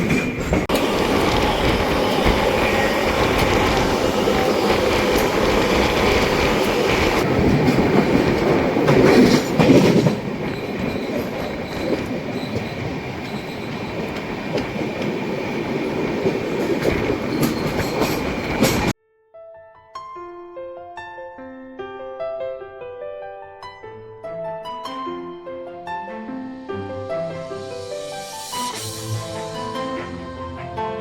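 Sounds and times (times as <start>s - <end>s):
train wheels rumbling: 0.0s - 19.0s.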